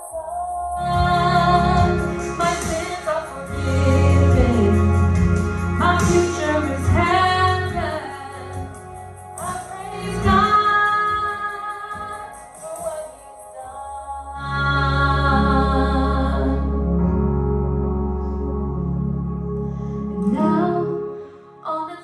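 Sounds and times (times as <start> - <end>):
woman singing gospel: 0.0 - 5.0, 5.8 - 8.7, 9.4 - 16.7
bass: 0.0 - 22.0
keyboard: 0.0 - 22.0.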